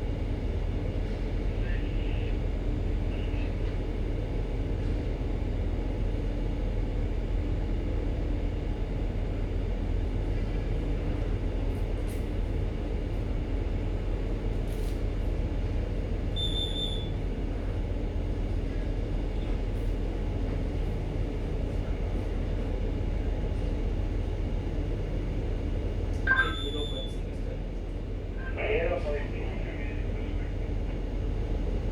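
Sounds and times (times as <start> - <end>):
ship engine drone: 15.3 - 31.9.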